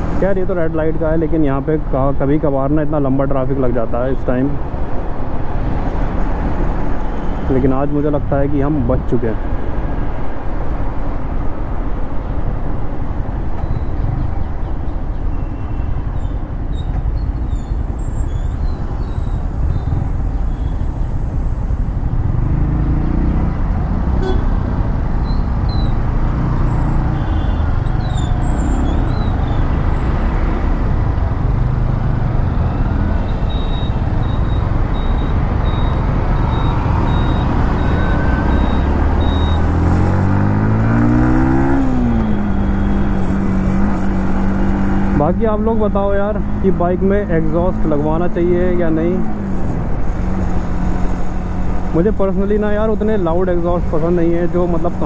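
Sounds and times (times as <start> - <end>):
vehicle horns tooting: 24.2 - 24.7, 27.0 - 27.8
short high beeps: 33.3 - 39.7.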